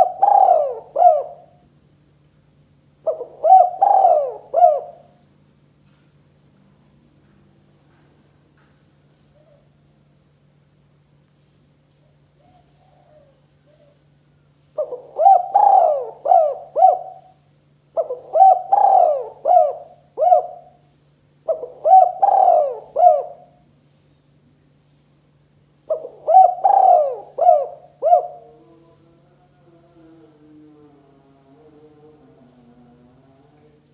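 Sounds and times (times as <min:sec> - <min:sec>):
dove cooing: 0:00.0 - 0:01.6, 0:03.0 - 0:05.2, 0:12.4 - 0:14.0, 0:14.8 - 0:20.8, 0:21.4 - 0:23.6, 0:25.9 - 0:28.7
steady low hum: 0:00.0 - 0:33.9.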